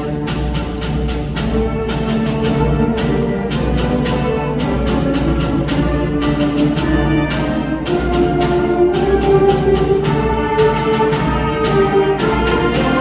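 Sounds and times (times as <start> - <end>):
percussion strikes: 0.0 - 13.0
wind and brass notes: 0.0 - 13.0.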